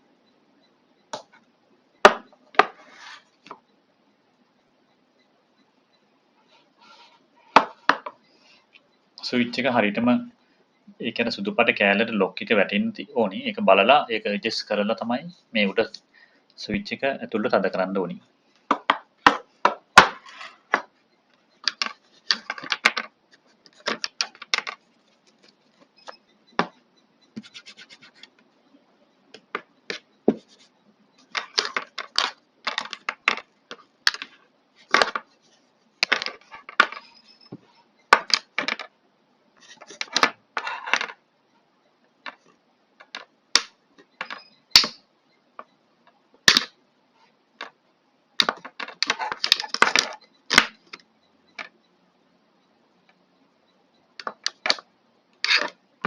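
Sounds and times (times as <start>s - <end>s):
plastic parts clicking and snapping: 43.0s - 45.0s, 46.4s - 46.8s, 48.4s - 51.7s, 54.2s - 55.8s.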